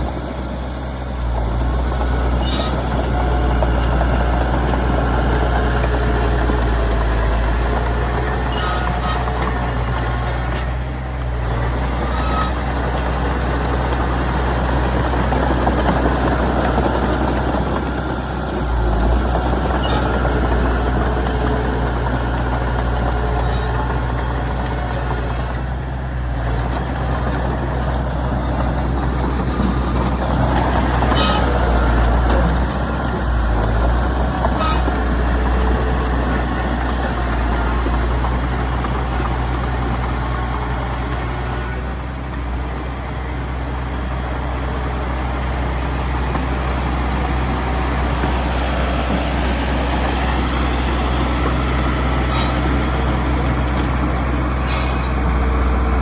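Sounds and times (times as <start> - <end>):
bulldozer diesel engine under load: 0.0 - 56.0
sharp metallic squeaks: 2.4 - 2.9, 8.4 - 9.3, 12.1 - 12.6, 19.7 - 20.2, 31.1 - 31.7, 34.6 - 35.0.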